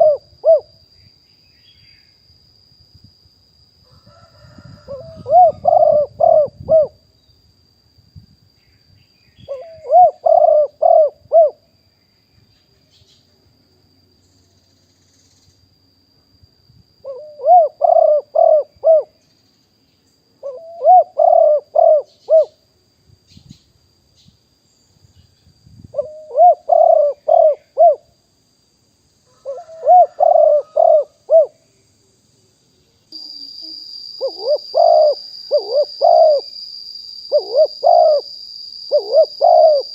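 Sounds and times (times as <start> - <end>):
dove cooing: 0.0 - 0.7, 4.5 - 7.0, 9.5 - 11.6, 17.0 - 19.2, 20.4 - 22.6, 26.0 - 28.1, 29.3 - 31.6, 33.6 - 36.5, 37.3 - 38.3, 38.9 - 39.9
faint high-pitched whine: 0.0 - 39.9.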